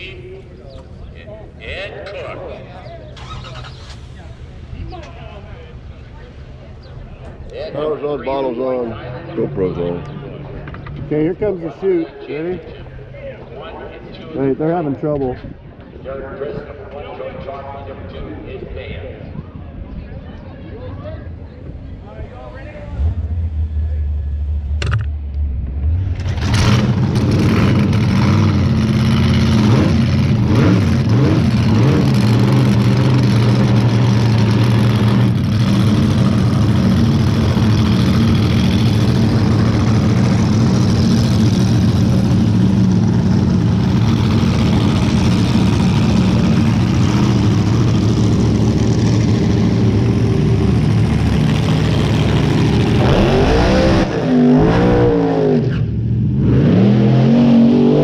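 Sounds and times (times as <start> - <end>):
dragster engine firing up: 3.1 - 4.6, 26.0 - 55.9
dragster engine idling loudly: 26.3 - 53.1.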